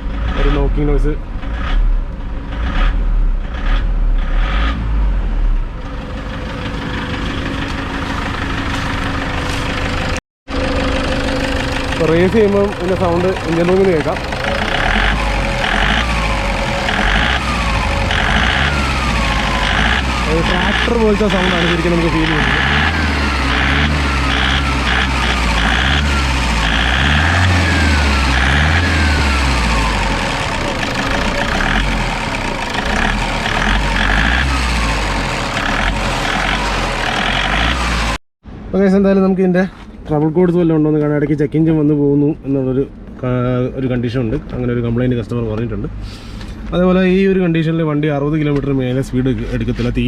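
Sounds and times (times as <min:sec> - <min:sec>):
diesel engine knocking and revving: 0:00.0 - 0:38.2.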